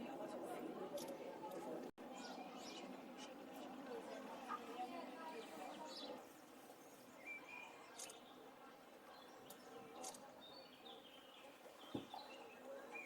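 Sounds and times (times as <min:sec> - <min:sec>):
small birds chirping: 0:02.1 - 0:03.7, 0:05.4 - 0:08.5, 0:09.1 - 0:13.0.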